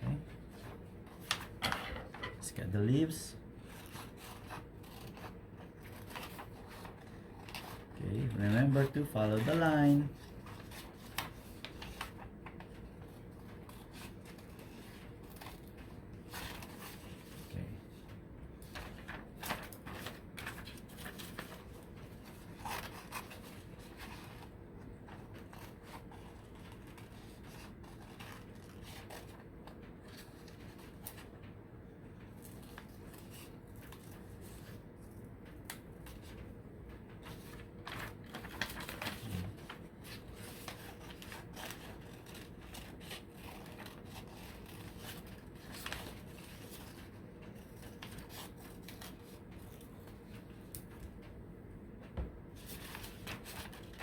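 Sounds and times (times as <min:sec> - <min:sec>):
low steady hum: 0:00.0 - 0:54.0
scissors snipping paper: 0:37.3 - 0:49.9.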